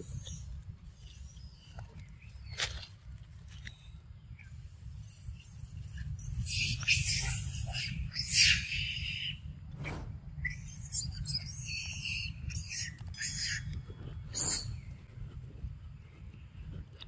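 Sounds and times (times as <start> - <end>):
steady low rumble: 9.4 - 10.7.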